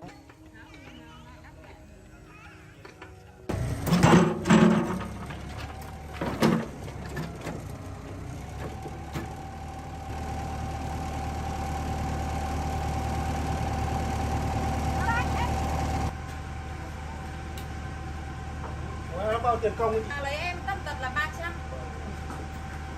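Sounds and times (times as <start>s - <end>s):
loud clanks and bangs: 3.5s - 7.9s
machine engine idling: 3.5s - 22.9s.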